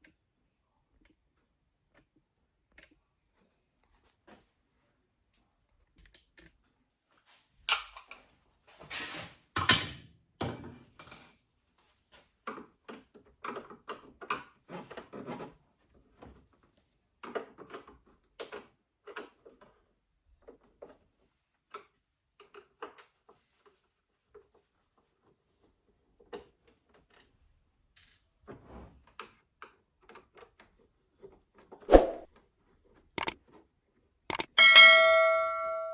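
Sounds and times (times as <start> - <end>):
knocks and clicks of handled parts: 34.3 - 35.9.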